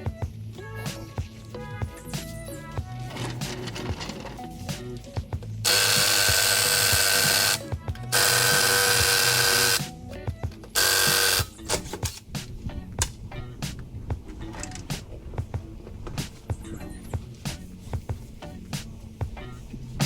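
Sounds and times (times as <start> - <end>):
background music: 0.0 - 20.0
motorized tool running: 5.6 - 9.9, 10.8 - 11.6.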